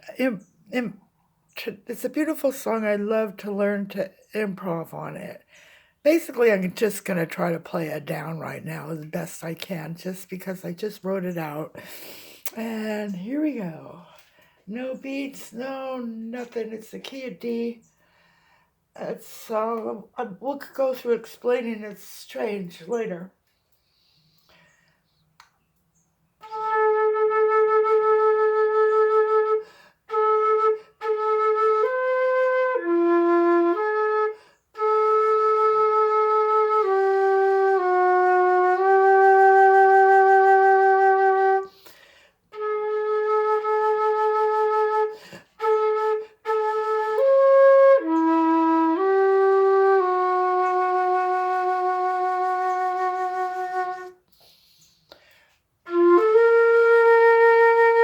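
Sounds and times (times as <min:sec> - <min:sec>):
solo flute-like melody: 0:26.4 - 0:41.8, 0:42.5 - 0:54.3, 0:55.8 - 0:58.0.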